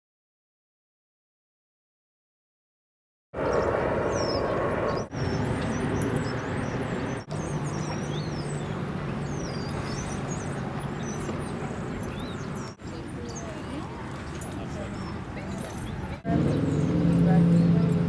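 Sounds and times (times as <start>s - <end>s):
vehicle rumble with low hum: 15.4s - 18.0s.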